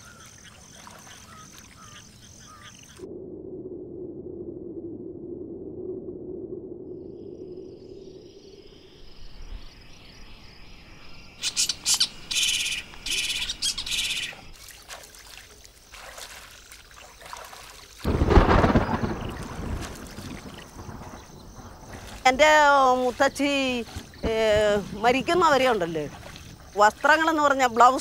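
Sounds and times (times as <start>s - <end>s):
birds calling and chirping: 0.0s - 3.0s, 11.0s - 14.6s.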